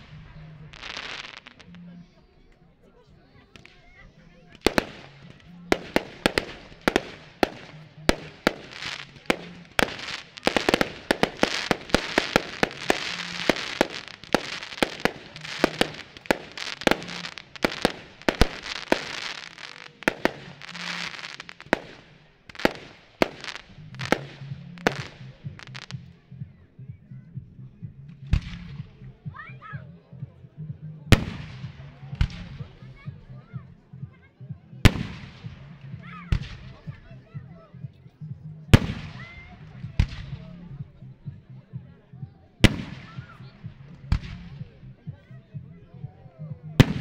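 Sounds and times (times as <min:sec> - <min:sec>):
firework crackling hiss: 0:00.0 - 0:01.7, 0:04.6 - 0:25.9
music playing: 0:00.0 - 0:47.0.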